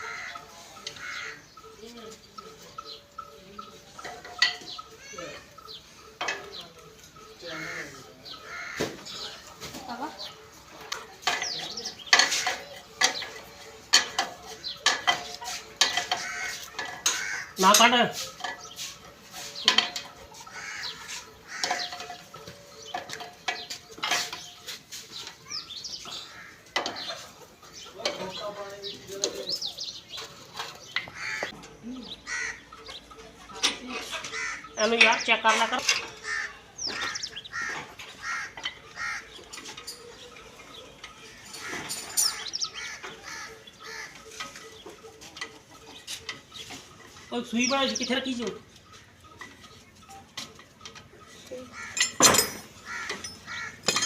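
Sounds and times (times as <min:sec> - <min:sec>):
birds calling and chirping: 0:00.0 - 0:54.0
chickens clucking: 0:00.0 - 0:54.0
short knocks and clinks: 0:52.0 - 0:54.0.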